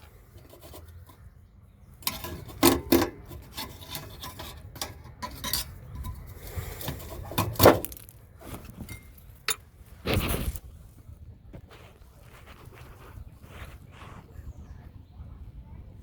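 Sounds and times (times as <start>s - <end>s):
rubbing and scraping: 0.0s - 1.4s, 2.0s - 9.1s.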